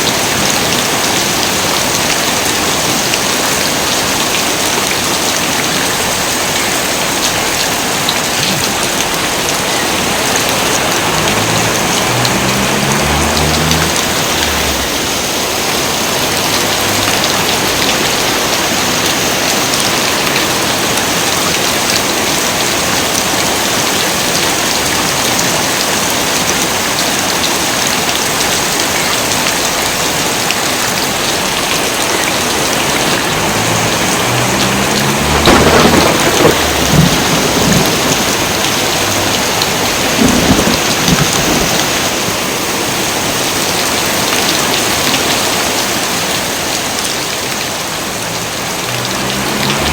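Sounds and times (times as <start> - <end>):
heavy rain falling: 0.0 - 49.9
thunder rumbling: 32.7 - 42.2.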